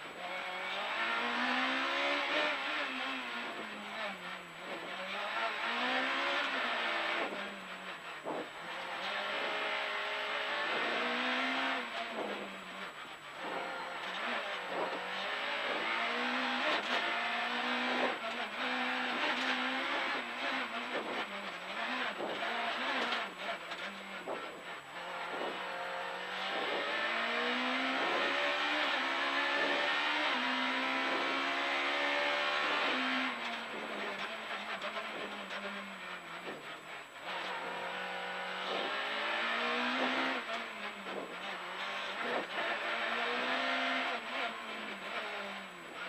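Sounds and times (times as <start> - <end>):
rally car engine revving: 0.0 - 46.0.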